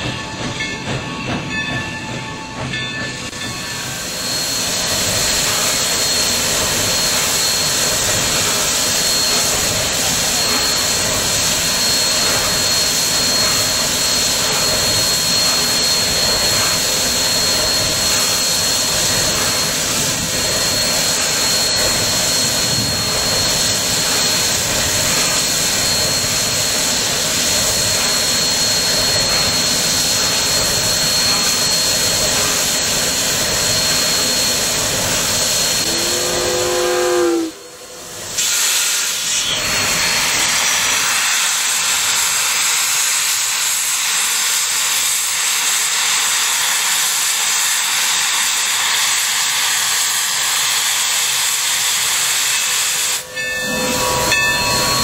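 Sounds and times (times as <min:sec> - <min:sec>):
moving train rushing hiss: 0:00.0 - 0:55.0
short pitched wavering sound: 0:35.8 - 0:37.7.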